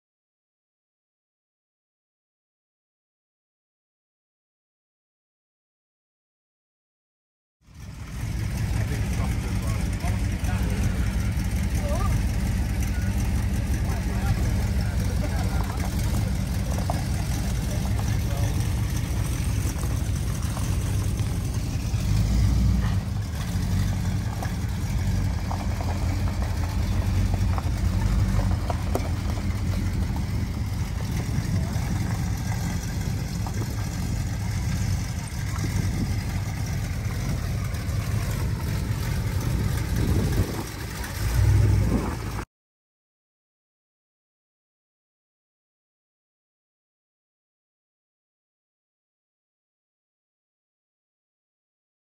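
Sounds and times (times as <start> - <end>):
car engine idling: 7.6 - 42.4.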